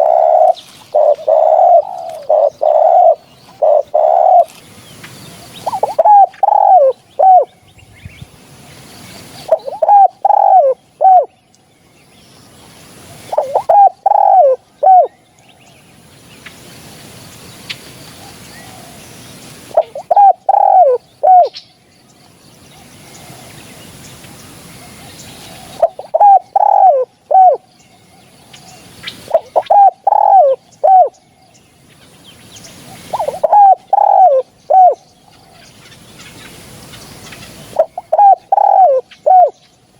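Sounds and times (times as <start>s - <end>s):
dove cooing: 0.0s - 4.6s, 5.5s - 7.5s, 9.4s - 11.3s, 13.1s - 15.2s, 19.7s - 21.6s, 24.8s - 31.2s, 32.8s - 35.6s, 37.3s - 39.6s.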